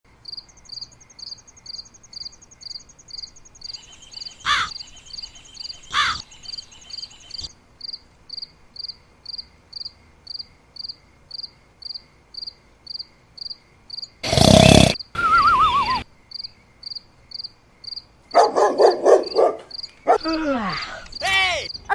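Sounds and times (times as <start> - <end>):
continuous high insect trill: 0.2 - 14.2, 15.6 - 18.2
insects chirping: 0.3 - 7.5, 14.2 - 16.5, 19.8 - 21.9
wavering insect calls: 3.6 - 7.5, 14.2 - 16.0.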